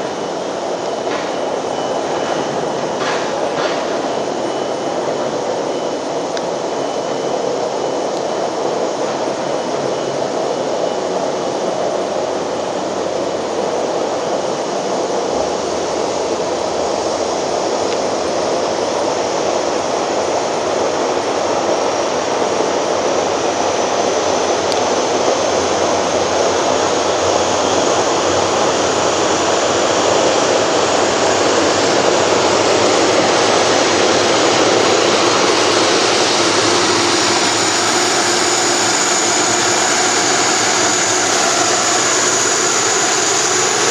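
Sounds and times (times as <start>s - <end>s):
high engine whine rising: 0.0s - 43.9s
jet engines running: 0.0s - 43.9s.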